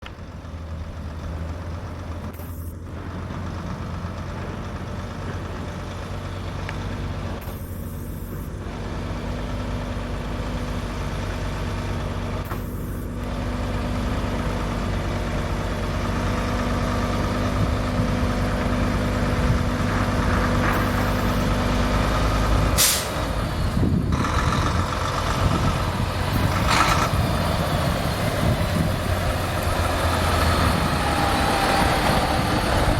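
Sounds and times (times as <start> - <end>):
diesel truck engine running: 0.0 - 32.9
air brakes hissing: 20.7 - 21.5, 22.7 - 23.4.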